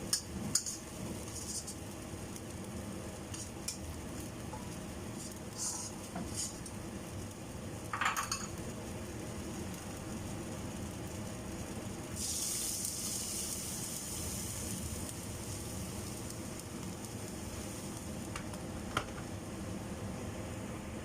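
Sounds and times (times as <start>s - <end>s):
noodles sizzling in a pan: 0.0s - 21.0s.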